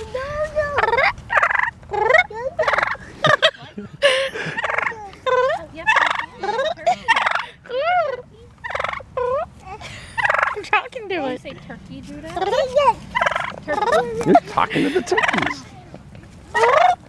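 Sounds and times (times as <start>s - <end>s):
person imitating turkey gobbles: 0.7s - 3.6s, 4.5s - 9.5s, 12.4s - 15.6s
turkeys gobbling: 0.7s - 10.8s, 12.3s - 15.7s, 16.5s - 17.0s.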